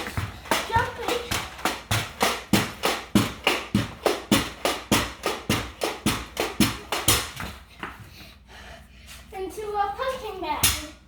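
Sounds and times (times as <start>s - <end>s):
pogo stick bouncing on hard floor: 0.0s - 8.1s.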